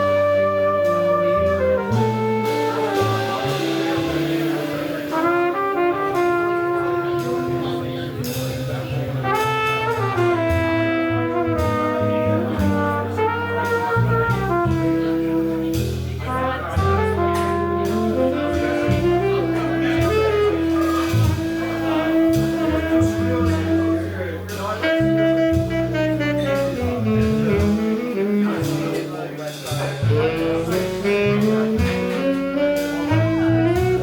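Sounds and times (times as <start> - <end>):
horn melody: 0.0 - 34.0
jazz band playing: 0.0 - 34.0
cymbal strokes: 2.4 - 5.6.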